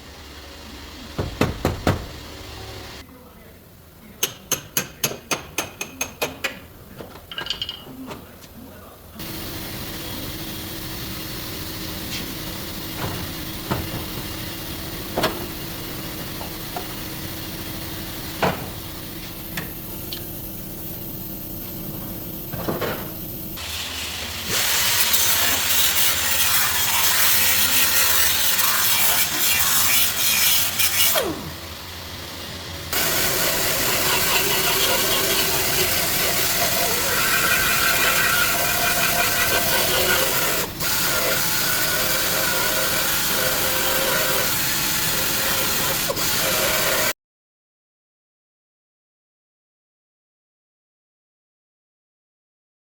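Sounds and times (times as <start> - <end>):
power tool grinding metal: 24.4 - 47.1.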